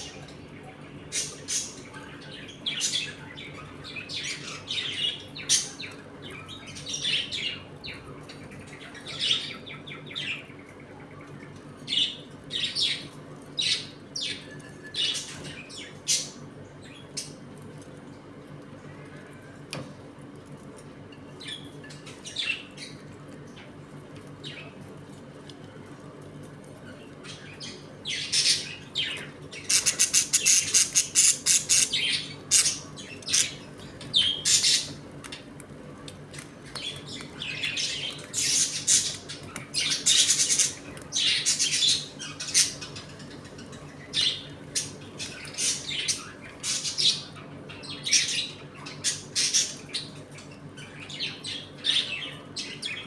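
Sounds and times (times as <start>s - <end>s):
budgerigars chattering and squawking: 1.0s - 10.5s, 27.2s - 35.5s, 36.7s - 53.0s.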